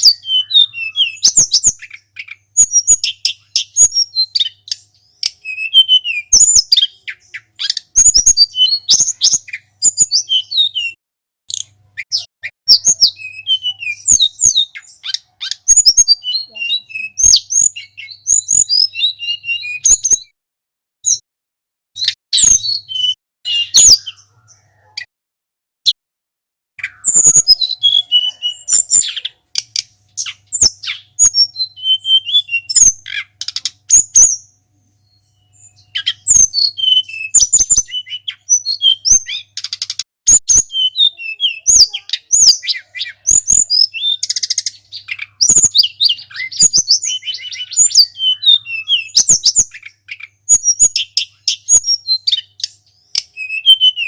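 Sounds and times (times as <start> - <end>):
songbird chirping and whistling: 0.0 - 20.4, 21.0 - 21.2, 22.0 - 25.1, 26.8 - 54.0
sharp bird clicking notes: 29.1 - 31.0, 33.0 - 33.9, 39.5 - 40.0.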